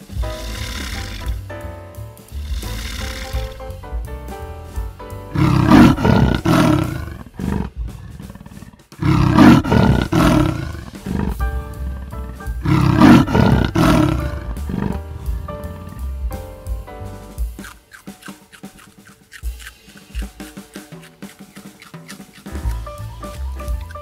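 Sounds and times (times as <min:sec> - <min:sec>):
background music: 0:00.0 - 0:24.0
big cat roaring: 0:05.3 - 0:15.2.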